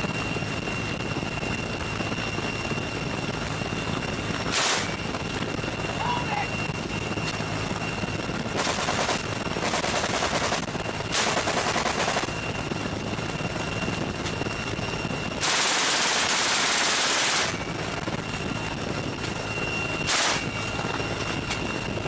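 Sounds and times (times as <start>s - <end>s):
helicopter whine and rotor noise: 0.0s - 22.0s
heavy machine gun firing bursts: 4.5s - 5.0s, 8.6s - 12.3s, 15.4s - 17.6s, 20.1s - 20.4s.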